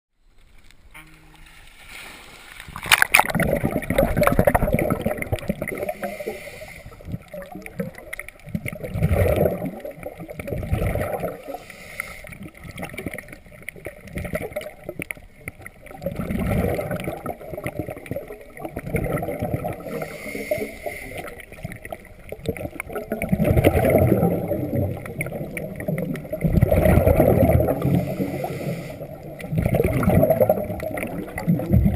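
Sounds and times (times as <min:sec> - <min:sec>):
splash into water: 0:01.8 - 0:05.6
muffled underwater gurgling and bubbling: 0:03.2 - 0:11.7, 0:15.8 - 0:31.9.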